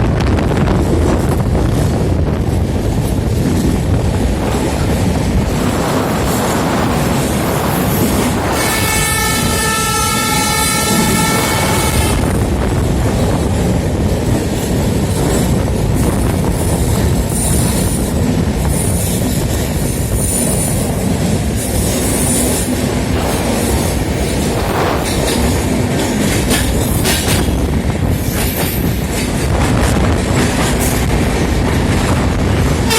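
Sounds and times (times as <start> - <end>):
train wheels rumbling on rails: 0.0 - 32.9
train horn: 8.4 - 12.3.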